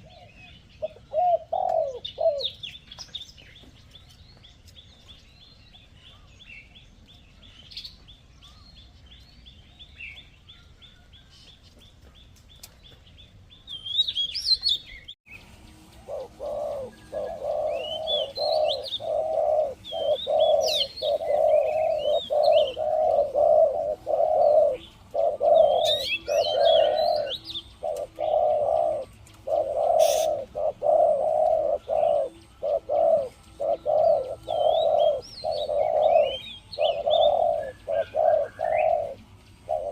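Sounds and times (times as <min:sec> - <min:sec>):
dove cooing: 0:00.0 - 0:02.8, 0:15.8 - 0:39.9
small birds chirping: 0:00.0 - 0:39.9.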